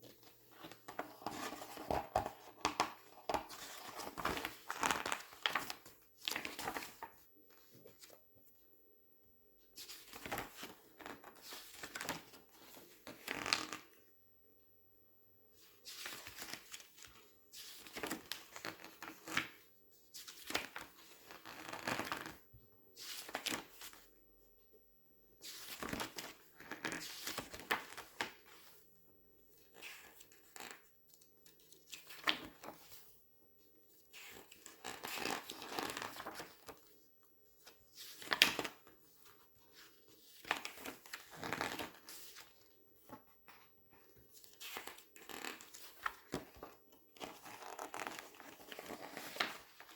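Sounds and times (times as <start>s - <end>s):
magazine pages rustling: 0.6s - 7.1s, 9.8s - 13.8s, 15.9s - 19.6s, 34.2s - 36.8s, 38.0s - 39.3s, 44.3s - 49.9s.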